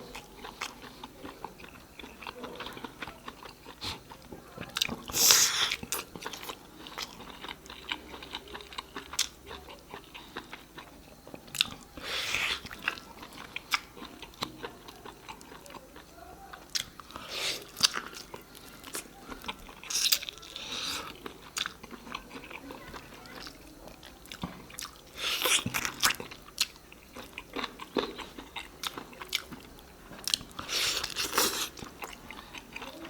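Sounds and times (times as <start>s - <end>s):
person chewing and biting food: 4.8s - 22.6s, 24.2s - 32.8s.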